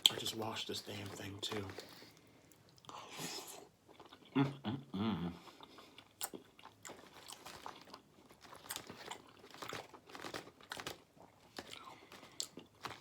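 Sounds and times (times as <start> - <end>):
person humming: 4.4 - 5.4
chewing and biting: 5.5 - 13.0.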